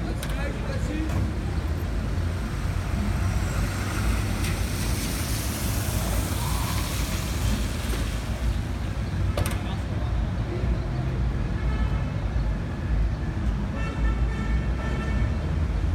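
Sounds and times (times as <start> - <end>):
vehicle engines rumbling: 0.0 - 15.9
tyres hissing on wet road: 0.8 - 10.4.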